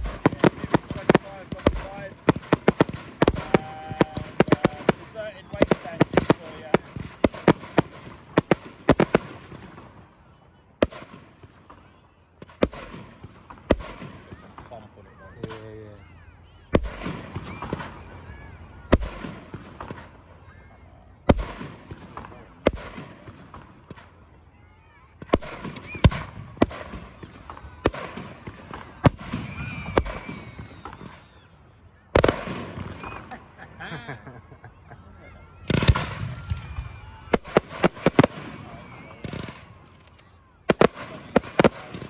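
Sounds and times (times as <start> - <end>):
firework shells bursting: 0.0 - 9.9, 37.4 - 38.6, 39.2 - 42.0
fireworks bangs: 0.0 - 14.7, 16.7 - 20.6, 21.2 - 33.9, 34.5 - 42.0
firework whistle: 25.5 - 26.4, 29.1 - 33.4.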